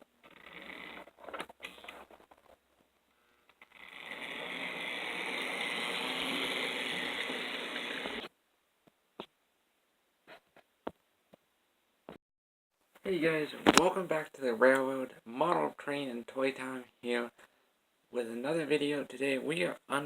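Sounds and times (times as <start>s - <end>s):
model locomotive motor whirring: 3.7s - 8.3s.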